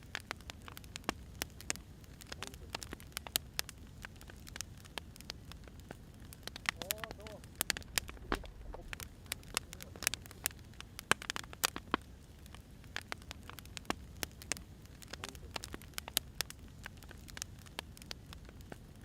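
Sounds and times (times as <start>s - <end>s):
low steady rumble: 0.0s - 15.0s
wood fire crackling and popping: 0.0s - 19.0s.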